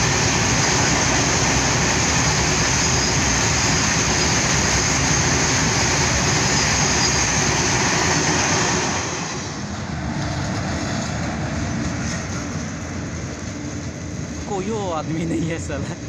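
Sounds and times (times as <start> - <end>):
train wheels on track: 0.0 - 16.0.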